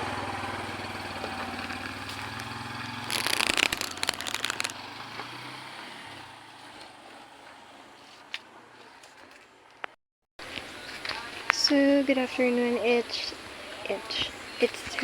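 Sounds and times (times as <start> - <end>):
motorcycle engine idling: 0.0 - 3.2, 4.0 - 7.8
loud crackling rattling noise: 0.0 - 5.4.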